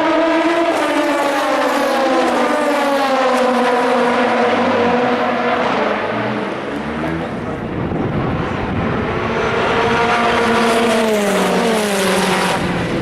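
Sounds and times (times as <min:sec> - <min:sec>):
race car engine passing by: 0:00.0 - 0:13.0.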